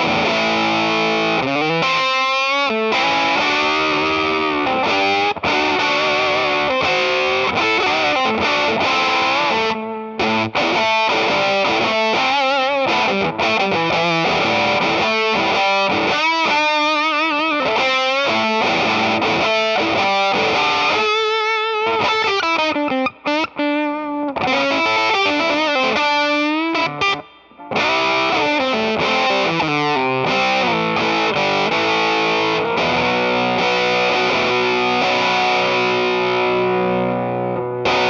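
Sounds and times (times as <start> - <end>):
fuzzed electric guitar lead: 0.0 - 38.0.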